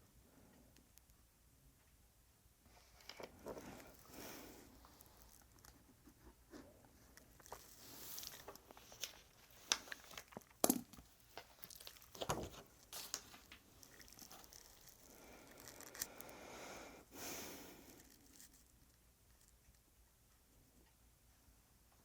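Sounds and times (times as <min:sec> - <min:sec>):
paper rustling: 0:03.0 - 0:16.3.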